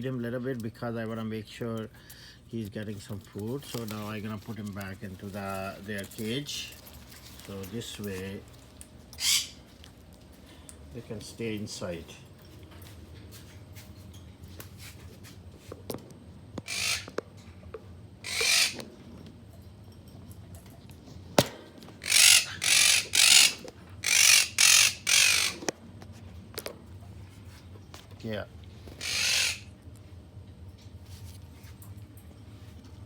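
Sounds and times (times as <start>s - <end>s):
parrots squawking harshly: 9.2s - 9.7s, 16.6s - 17.2s, 18.2s - 18.9s, 22.0s - 25.7s, 28.9s - 29.8s.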